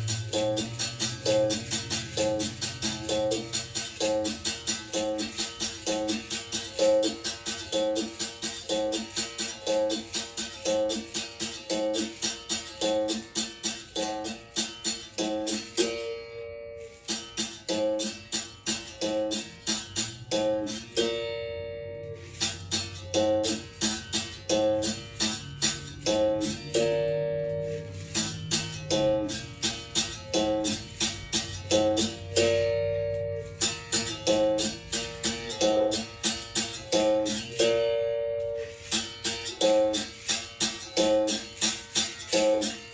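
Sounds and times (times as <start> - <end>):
berimbau playing: 0.0 - 42.9.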